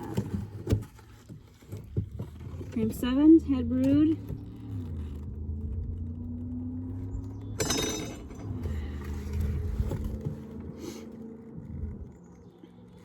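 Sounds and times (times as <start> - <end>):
rustling and knocks: 0.0 - 2.8
low steady hum: 0.0 - 10.4.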